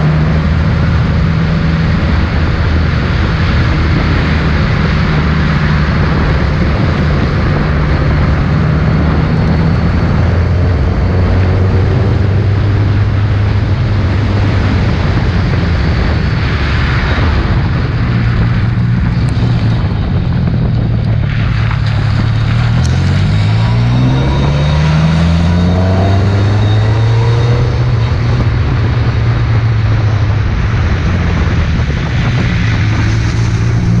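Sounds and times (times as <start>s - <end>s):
race car engine revving: 0.0s - 34.0s
wind and wet road hiss: 10.0s - 26.4s, 27.1s - 34.0s.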